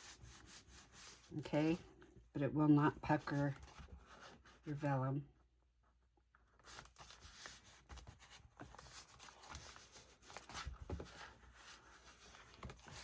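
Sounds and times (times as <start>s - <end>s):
paper rustling and rubbing: 0.0s - 1.5s, 6.5s - 13.0s.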